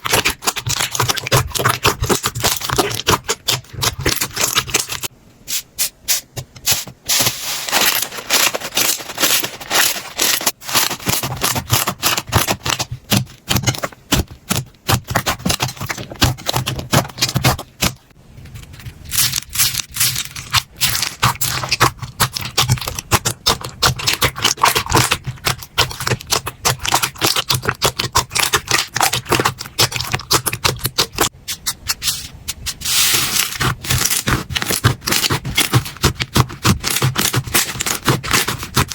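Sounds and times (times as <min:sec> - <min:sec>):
slime crackling and popping: 0:00.0 - 0:05.1, 0:19.1 - 0:31.3, 0:33.2 - 0:38.9.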